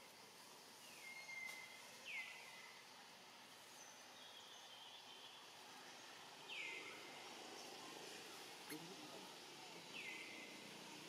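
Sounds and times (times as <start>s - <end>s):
faint forest background: 0.0s - 11.0s
whistled bird calls: 0.9s - 2.7s.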